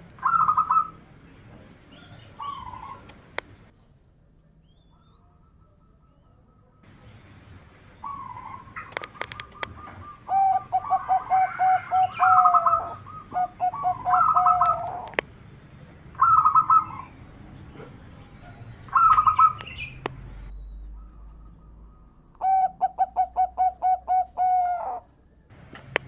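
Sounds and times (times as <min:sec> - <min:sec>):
doves cooing: 0:00.0 - 0:03.7, 0:04.9 - 0:26.0
sharp clicks: 0:08.8 - 0:09.8.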